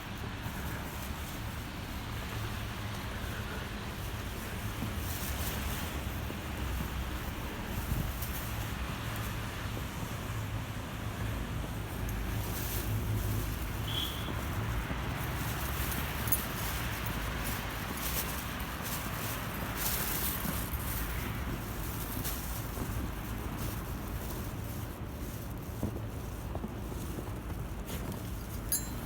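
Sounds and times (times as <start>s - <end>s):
wind buffeting microphone: 3.7s - 18.8s.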